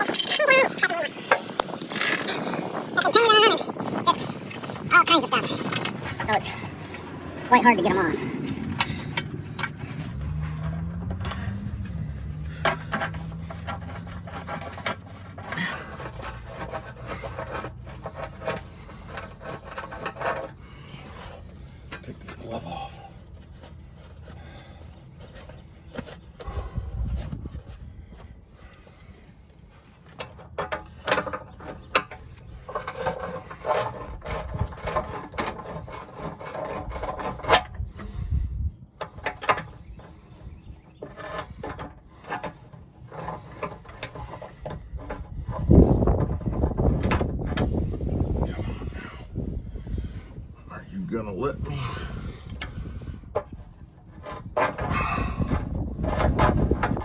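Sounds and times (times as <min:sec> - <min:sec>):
tools scraping on tire rim: 0:00.0 - 0:57.0
tools knocking and clinking: 0:08.7 - 0:15.1.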